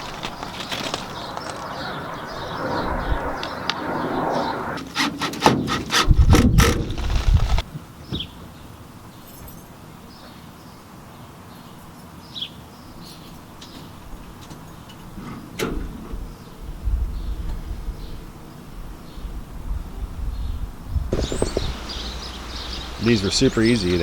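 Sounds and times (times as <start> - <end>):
tools rubbing and scraping: 4.8 - 7.0
knocks and clatter: 4.9 - 7.6.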